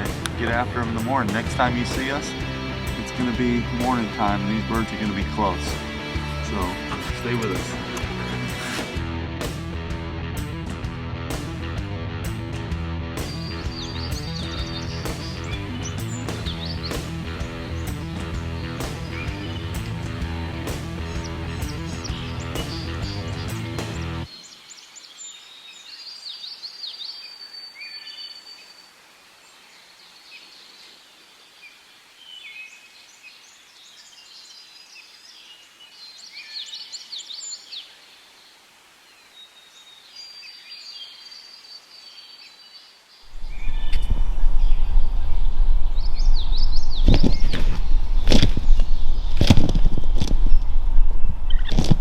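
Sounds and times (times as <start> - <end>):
songbirds singing: 0.0 - 8.7, 13.2 - 52.0
background music: 0.0 - 24.3
loud low rumbling: 43.3 - 52.0.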